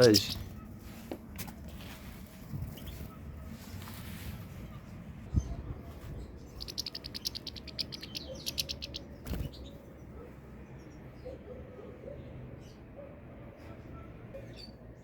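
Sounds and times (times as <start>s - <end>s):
goldfinch singing a rapid trill: 0.0s - 0.6s, 6.4s - 9.7s.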